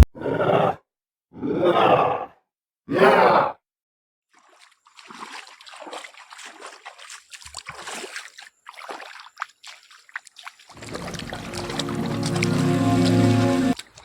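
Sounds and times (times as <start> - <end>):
water splashing and sloshing: 4.3 - 14.0
water drips: 4.4 - 14.0.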